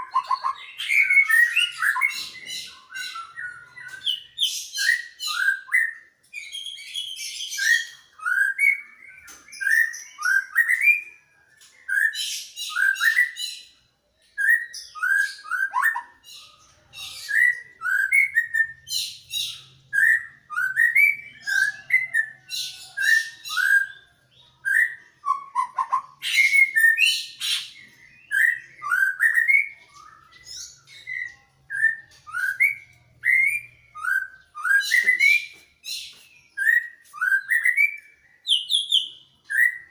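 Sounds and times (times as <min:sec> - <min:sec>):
high bird chattering: 0:00.0 - 0:02.5.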